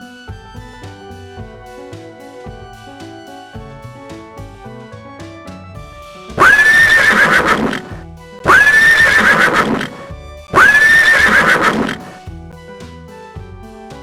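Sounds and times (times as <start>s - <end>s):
quiet background music: 0.0s - 14.0s
horse whinnying: 6.4s - 12.1s.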